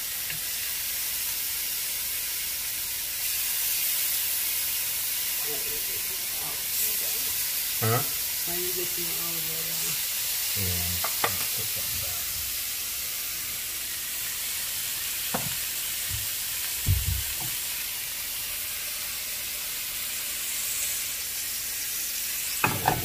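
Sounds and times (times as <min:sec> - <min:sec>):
fish sizzling in butter: 0:00.0 - 0:23.0
dull knocks: 0:16.1 - 0:17.4.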